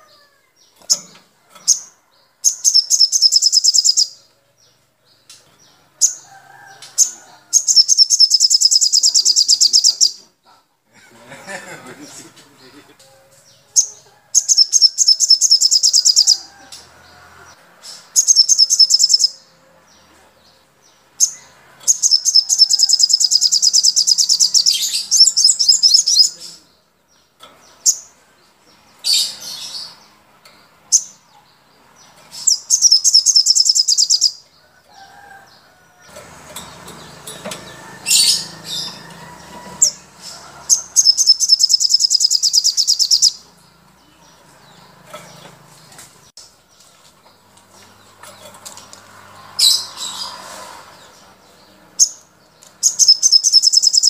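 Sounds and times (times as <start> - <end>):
songbirds trilling: 0.0 - 54.0
sharp bird calls: 2.5 - 4.3, 7.0 - 10.6, 13.8 - 16.8, 17.8 - 19.5, 21.2 - 26.8, 32.3 - 34.6, 40.6 - 43.5, 49.5 - 54.0.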